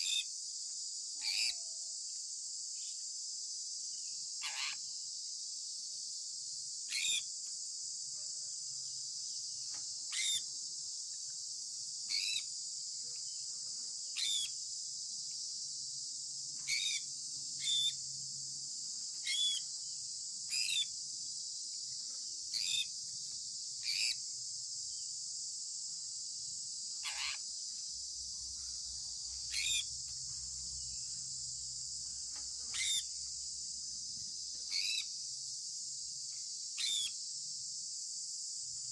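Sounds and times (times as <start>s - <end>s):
high-pitched insect-like hiss: 0.0s - 38.9s
parrot chirping: 10.1s - 10.4s, 14.2s - 14.5s, 16.7s - 18.0s, 19.2s - 19.6s, 23.8s - 24.2s, 27.0s - 27.4s, 29.5s - 29.9s, 32.7s - 33.1s.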